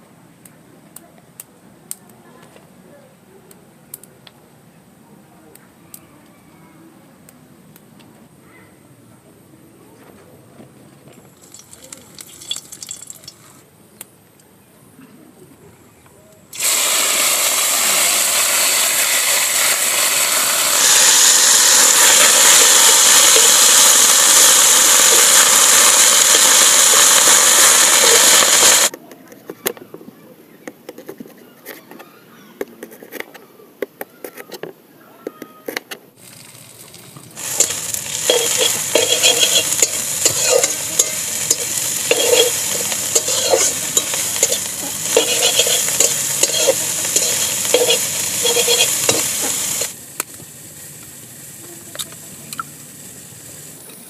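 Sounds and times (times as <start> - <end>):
oil crackling: 11.3 - 13.5, 16.6 - 28.9, 36.2 - 52.8
greens sizzling in hot oil: 11.4 - 13.5, 16.6 - 28.9, 37.4 - 54.0
metal utensil scraping wok: 16.6 - 28.9, 37.4 - 50.0.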